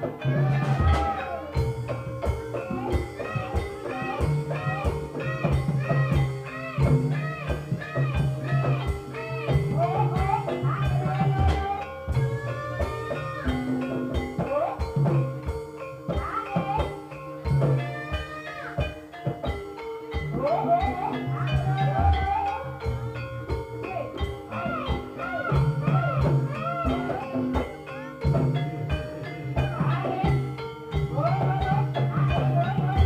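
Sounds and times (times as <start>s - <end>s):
drum strokes: 0.0s - 33.0s
gamelan music: 0.0s - 33.0s.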